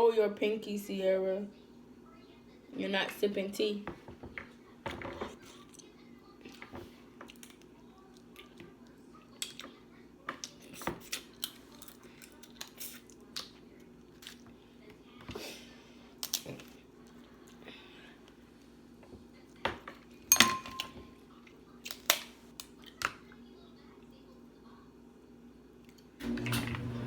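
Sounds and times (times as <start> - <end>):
chewing: 5.3 - 14.9, 16.1 - 18.4, 21.4 - 23.4
crab shell cracking: 16.2 - 16.8.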